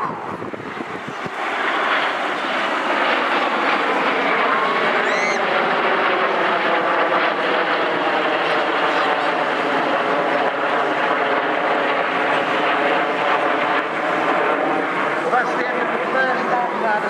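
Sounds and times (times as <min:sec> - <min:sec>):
jets flying over: 0:00.0 - 0:17.0
short rising whine: 0:05.0 - 0:05.4.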